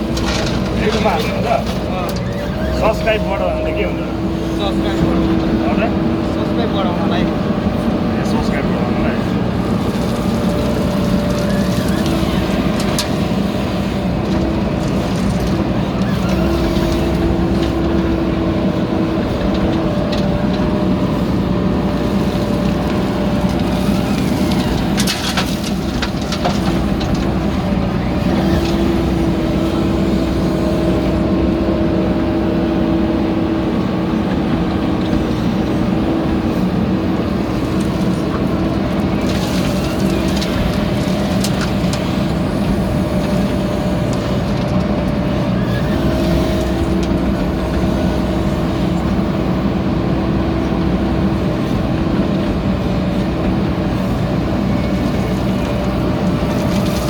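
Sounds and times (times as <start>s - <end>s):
backhoe diesel engine running: 0.0s - 57.0s.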